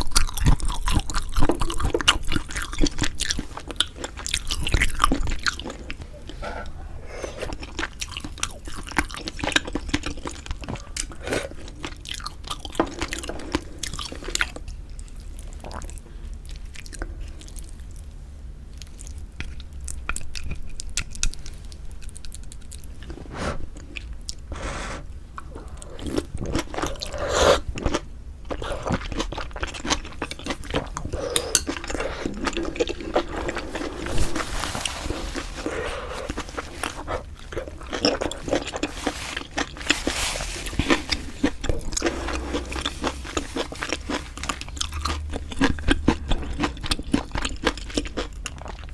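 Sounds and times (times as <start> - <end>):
person chewing food: 0.0 - 18.0, 18.7 - 48.9.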